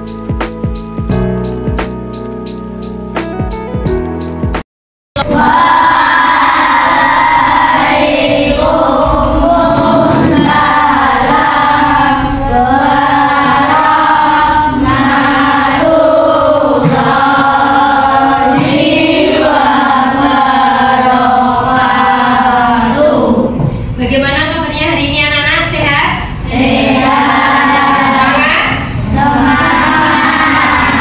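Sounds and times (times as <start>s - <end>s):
choir singing: 5.2s - 23.5s, 26.4s - 28.4s, 29.0s - 31.0s.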